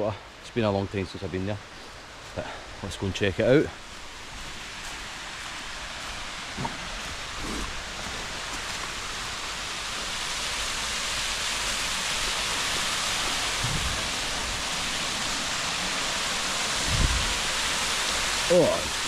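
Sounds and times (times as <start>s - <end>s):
waterfall rushing: 1.7s - 19.0s
soft low thumps: 13.6s - 14.3s.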